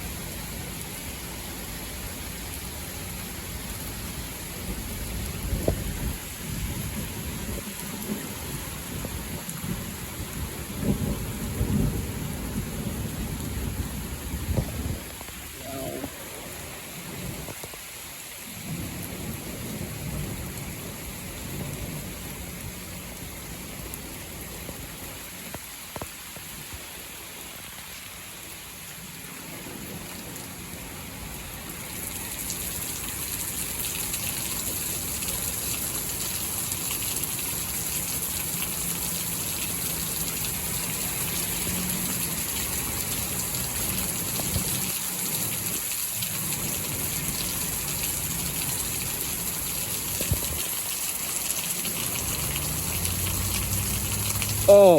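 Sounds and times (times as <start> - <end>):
steady rain: 0.0 - 54.9
low thunder rumbling: 4.6 - 17.5.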